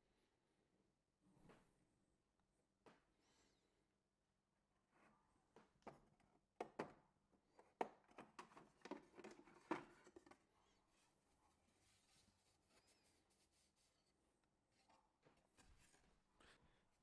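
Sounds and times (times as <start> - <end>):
light clicks and knocks handling objects: 7.6 - 10.5.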